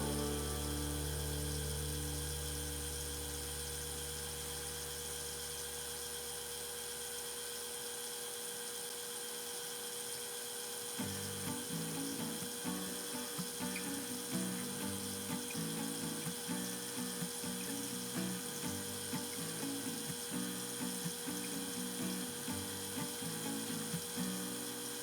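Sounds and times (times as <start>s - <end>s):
machine hum: 0.0s - 5.6s, 11.0s - 25.0s.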